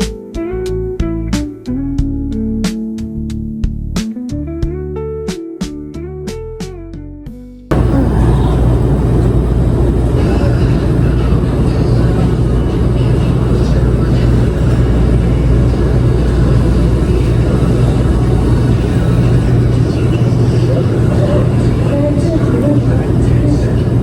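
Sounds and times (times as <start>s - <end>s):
guitar music: 0.0s - 24.0s
low mechanical hum and rumble: 7.7s - 24.0s.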